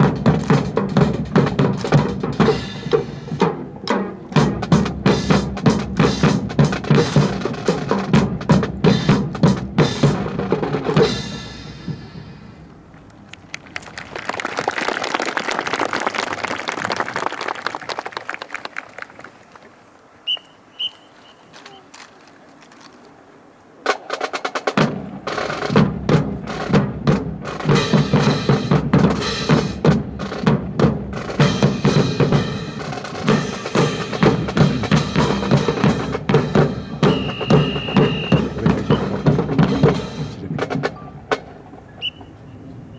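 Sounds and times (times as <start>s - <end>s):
marching bass and snare drums: 0.0s - 12.6s, 23.8s - 42.9s.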